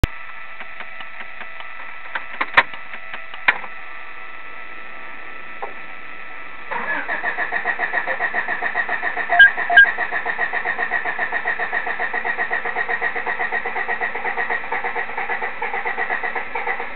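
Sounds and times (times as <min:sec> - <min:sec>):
starter motor cranking engine: 0:06.7 - 0:10.3.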